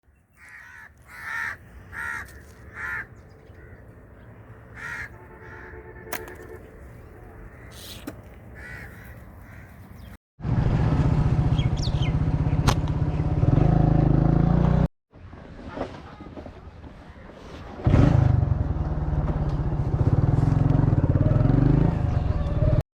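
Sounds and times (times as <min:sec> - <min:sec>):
quiet outdoor ambience: 0:00.0 - 0:10.1
harsh cawing bird calls: 0:00.2 - 0:06.6, 0:07.4 - 0:10.2.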